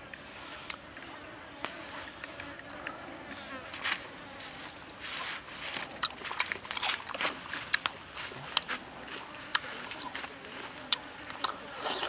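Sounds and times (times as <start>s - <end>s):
person chewing food: 5.9s - 10.1s, 10.8s - 12.0s
mouth clicks: 10.8s - 12.0s
wet lip smacks: 10.9s - 12.0s.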